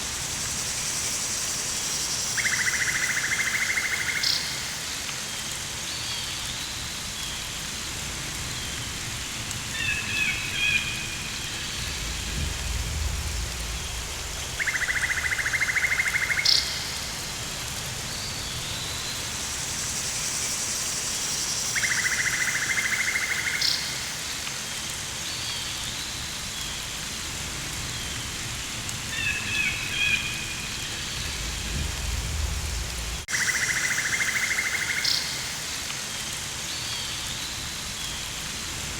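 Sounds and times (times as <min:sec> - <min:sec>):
steady rain-like hiss: 0:00.0 - 0:38.9
low rumble: 0:11.6 - 0:14.6, 0:31.0 - 0:33.3.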